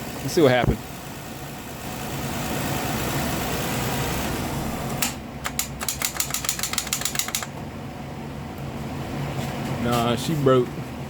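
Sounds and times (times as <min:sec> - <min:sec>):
car starter clicking rapidly: 0:05.4 - 0:07.5.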